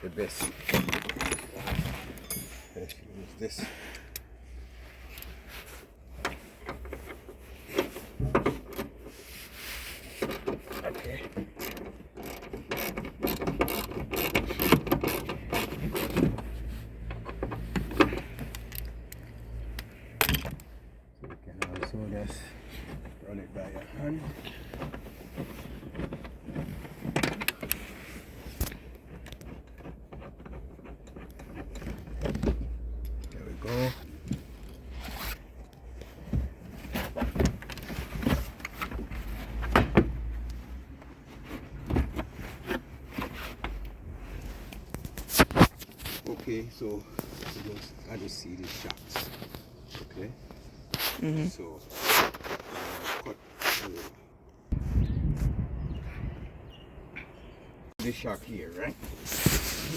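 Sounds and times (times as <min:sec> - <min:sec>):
metal hand tools clinking: 0:00.3 - 0:03.1.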